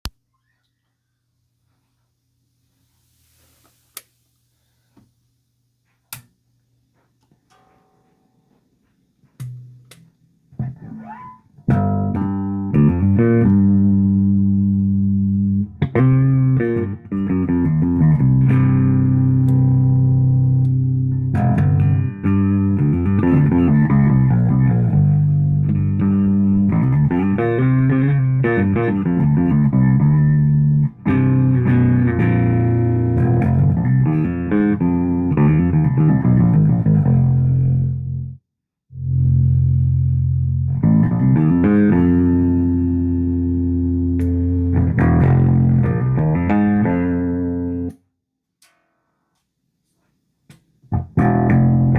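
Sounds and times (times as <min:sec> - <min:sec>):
electric bass notes and riffs: 0:09.4 - 0:48.0, 0:50.8 - 0:51.9.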